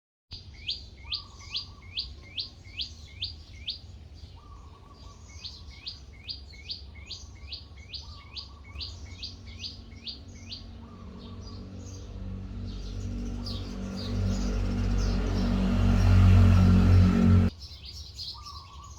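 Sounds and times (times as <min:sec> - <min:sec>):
lower bird call: 0:00.6 - 0:17.5
low rumbling noise: 0:09.8 - 0:17.5.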